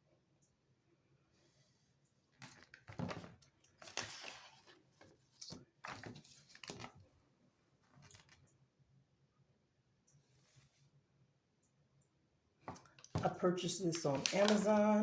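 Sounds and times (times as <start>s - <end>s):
handling rustles and clicks: 2.3s - 7.1s, 7.8s - 8.5s, 12.6s - 15.0s.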